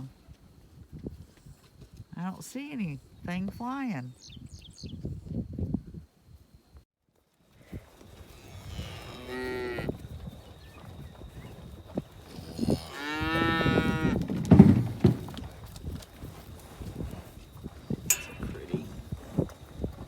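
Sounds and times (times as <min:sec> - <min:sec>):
cattle mooing: 0:08.4 - 0:09.9, 0:12.3 - 0:14.9
low thumps: 0:13.7 - 0:15.5.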